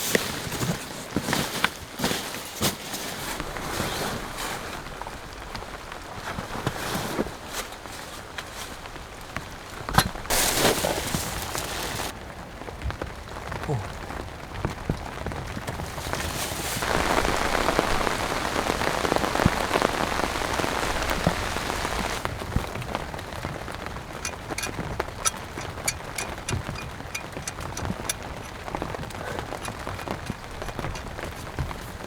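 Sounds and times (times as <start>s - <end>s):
steady rain falling: 0.0s - 32.0s
sharp ticks: 24.2s - 28.6s.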